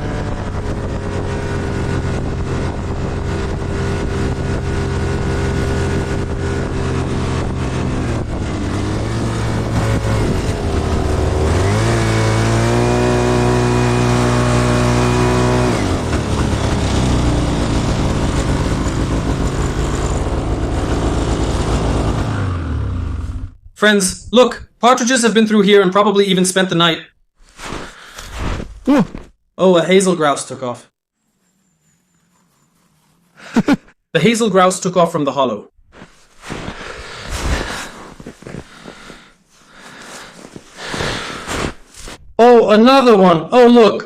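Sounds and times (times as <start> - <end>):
snowmobile engine revving: 0.0 - 23.6, 36.0 - 42.2.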